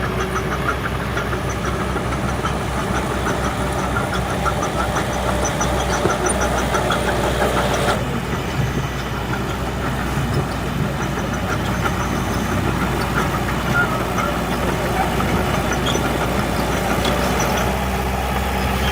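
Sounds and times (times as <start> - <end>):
engine knocking clatter: 0.0 - 18.9
heavy machinery diesel engine running: 0.0 - 18.9
high-pitched engine noise: 0.0 - 18.9.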